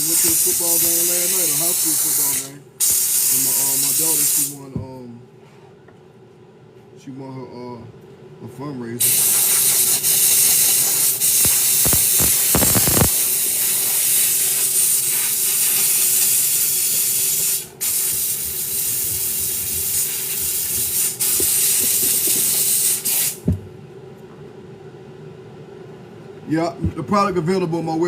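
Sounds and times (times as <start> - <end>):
spray jet hissing: 0.0 - 4.5, 9.0 - 23.5.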